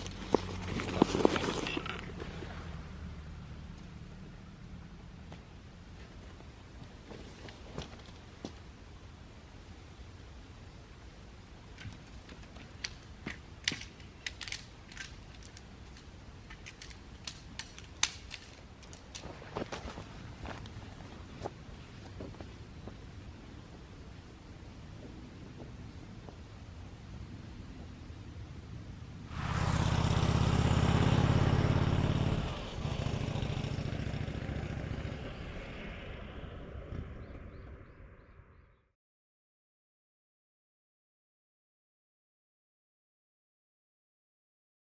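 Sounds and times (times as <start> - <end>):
wood fire crackling: 11.6 - 21.4
vehicle engine running: 29.3 - 37.3.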